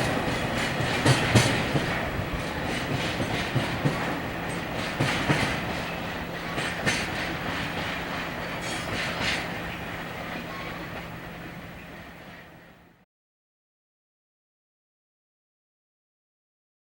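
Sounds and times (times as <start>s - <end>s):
train wheels clacking over rail joints: 0.0s - 11.1s.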